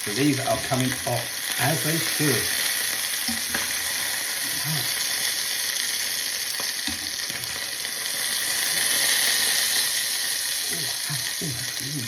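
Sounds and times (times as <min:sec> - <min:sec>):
chicken sizzling in a skillet: 0:00.0 - 0:12.0.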